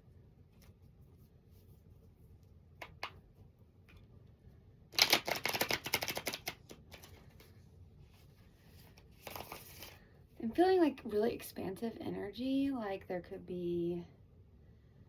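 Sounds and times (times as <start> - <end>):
cards riffle shuffling: 5.0 - 7.5, 8.8 - 10.0.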